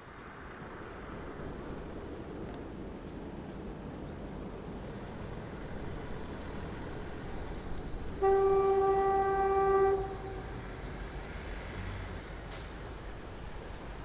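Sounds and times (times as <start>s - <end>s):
locomotive horn toot: 8.1s - 10.6s.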